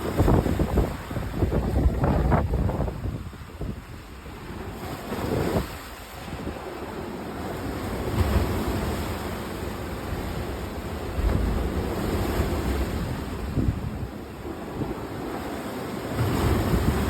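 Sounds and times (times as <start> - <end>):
sea waves washing ashore: 0.0 - 17.0
wind: 0.0 - 17.0.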